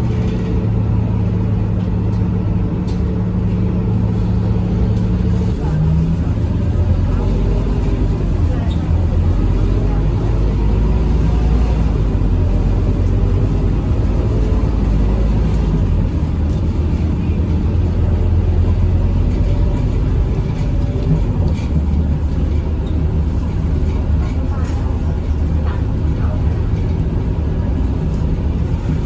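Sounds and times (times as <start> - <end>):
bus diesel engine droning: 0.0 - 29.0.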